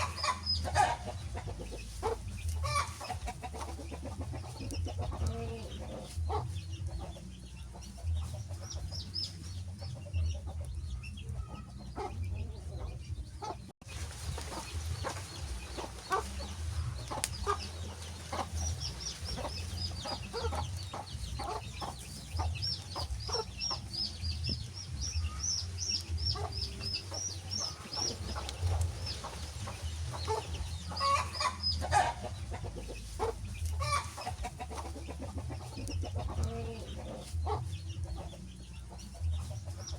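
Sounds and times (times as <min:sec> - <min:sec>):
wood fire crackling and popping: 0:17.0 - 0:17.4.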